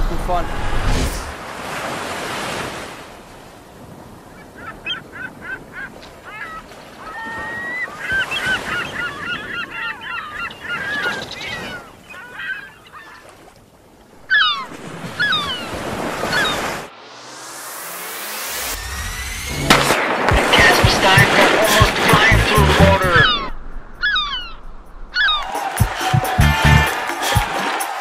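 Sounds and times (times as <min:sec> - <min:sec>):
gulls calling: 0:04.3 - 0:13.3, 0:14.2 - 0:16.9, 0:19.2 - 0:27.9.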